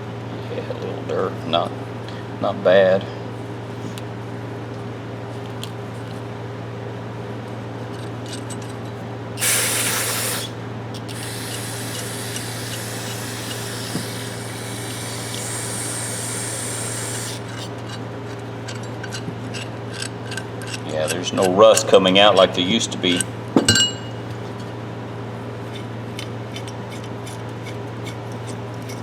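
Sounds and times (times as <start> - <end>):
steady low hum: 0.0 - 29.0
faint spray hiss: 9.4 - 10.5, 11.1 - 17.5
aerosol spray burst: 9.4 - 17.6.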